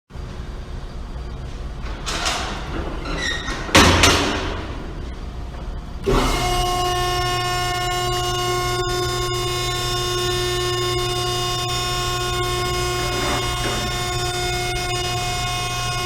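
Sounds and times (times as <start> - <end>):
loud metal slam: 3.6 - 5.0
baler motor humming: 4.0 - 16.0.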